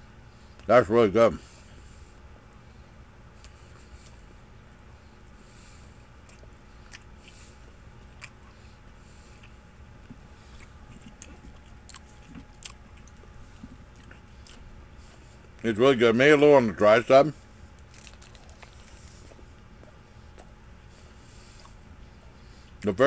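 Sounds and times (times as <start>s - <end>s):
low steady hum: 0.0s - 23.0s
mouth clicks and smacks: 8.1s - 8.4s.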